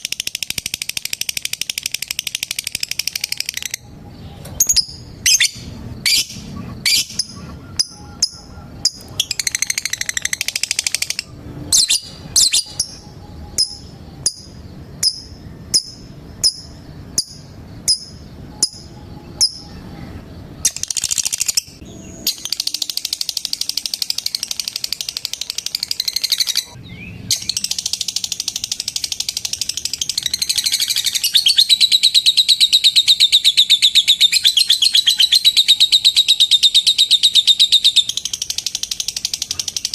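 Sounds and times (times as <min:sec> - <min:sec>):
lovebird chattering trills: 0:00.0 - 0:39.9
lovebird chirps: 0:00.0 - 0:39.9.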